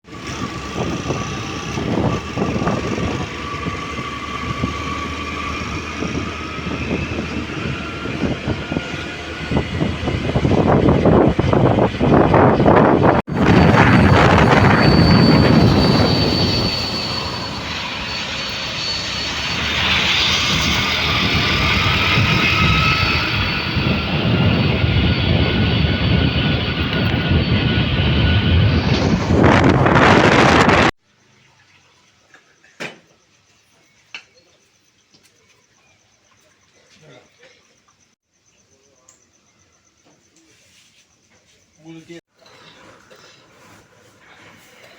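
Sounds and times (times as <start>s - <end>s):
vehicle rumble: 0.1s - 30.9s
vehicle rattling: 0.2s - 30.9s
air rushing: 0.9s - 30.9s.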